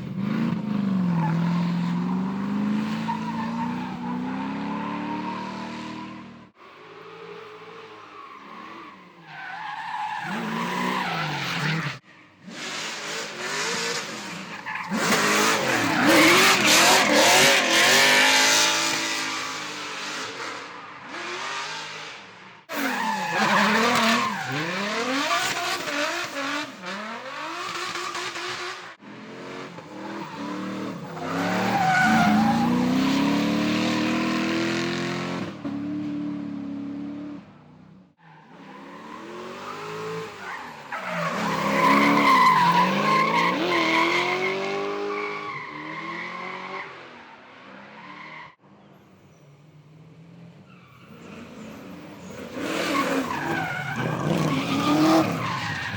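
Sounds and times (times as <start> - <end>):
car engines revving hard: 0.0 - 9.2, 10.1 - 47.8, 50.5 - 55.9
tires squealing and skidding: 0.9 - 29.1, 29.7 - 35.1, 38.2 - 49.6, 50.6 - 55.9.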